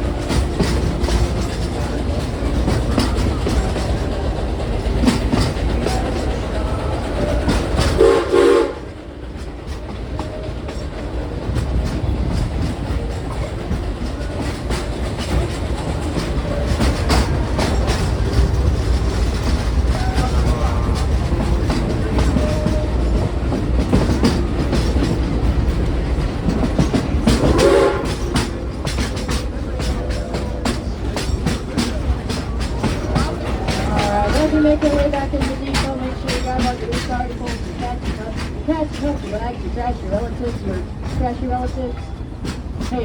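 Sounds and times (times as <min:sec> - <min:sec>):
train car rumble: 0:00.0 - 0:43.0
wheels clacking over rail joints: 0:00.0 - 0:43.0
steam whistle blast: 0:08.0 - 0:08.9, 0:27.5 - 0:28.3.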